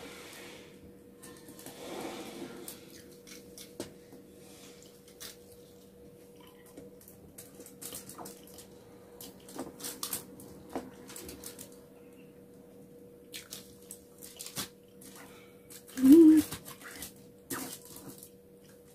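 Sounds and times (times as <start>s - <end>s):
aluminium foil crackling: 7.0s - 8.7s, 9.4s - 11.8s.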